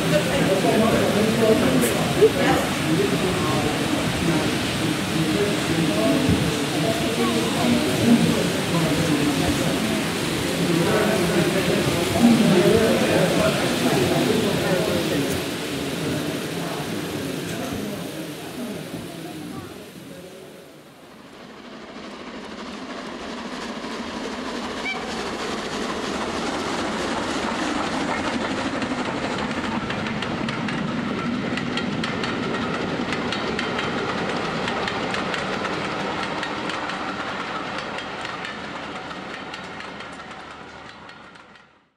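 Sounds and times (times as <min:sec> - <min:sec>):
train passing: 0:00.0 - 0:41.9.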